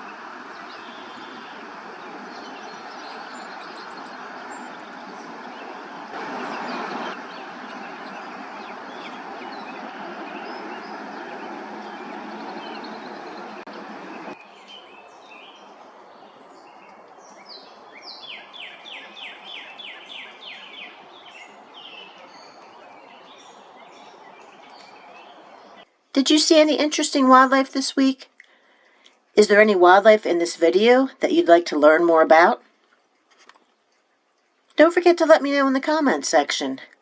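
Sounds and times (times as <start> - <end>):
steady rushing noise: 0.0 - 14.4
songbird chirping and singing: 0.0 - 27.4.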